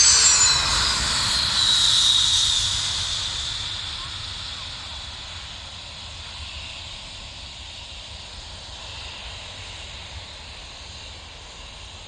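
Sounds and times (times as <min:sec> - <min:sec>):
jet engines hissing and whining: 0:00.0 - 0:07.3.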